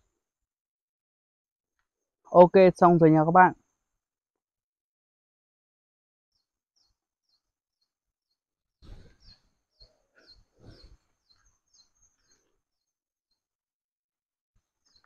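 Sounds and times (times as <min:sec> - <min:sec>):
small bird chirping: 0:06.4 - 0:13.5, 0:14.8 - 0:15.0.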